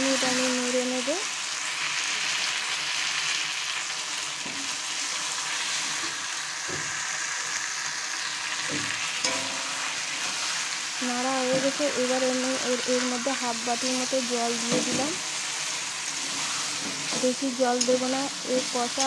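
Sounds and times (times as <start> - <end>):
food sizzling in oil: 0.0 - 19.0
metal spatula scraping pan: 9.1 - 10.6, 14.6 - 17.2.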